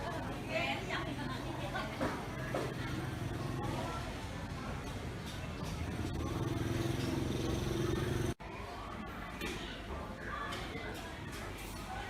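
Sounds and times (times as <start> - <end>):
murmur of voices: 0.0 - 12.0
small engine running: 5.8 - 8.4.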